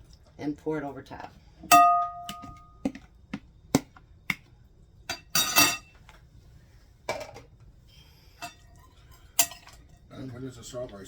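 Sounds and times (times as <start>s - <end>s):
ringing clink: 1.7s - 2.8s
utensils knocking against a bowl: 1.7s - 3.0s.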